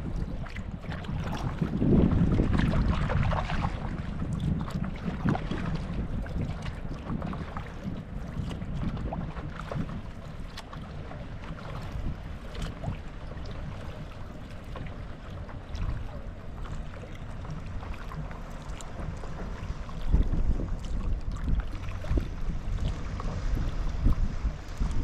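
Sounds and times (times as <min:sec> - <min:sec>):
water splashing from paddle strokes: 0:00.0 - 0:25.0
wind rumbling on microphone: 0:00.0 - 0:25.0.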